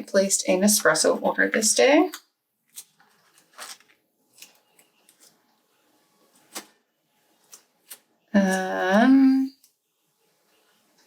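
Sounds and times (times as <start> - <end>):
taps clicks and paper rustles: 2.1 - 5.4.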